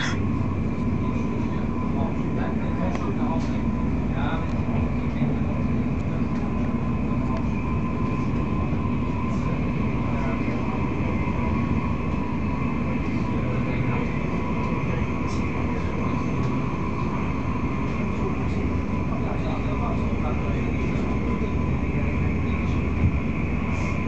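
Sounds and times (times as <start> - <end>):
faint steady whine: 0.0 - 24.0
train wheels rumbling on rails: 0.0 - 24.0.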